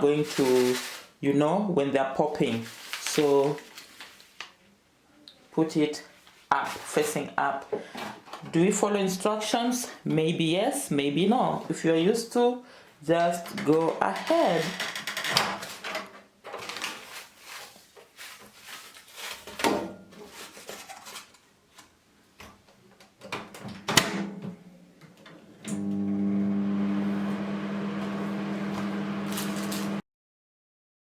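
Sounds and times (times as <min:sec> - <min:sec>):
popcorn bag being handled: 0:00.0 - 0:01.2, 0:02.3 - 0:04.5, 0:16.6 - 0:21.4
microwave oven humming: 0:25.7 - 0:30.0.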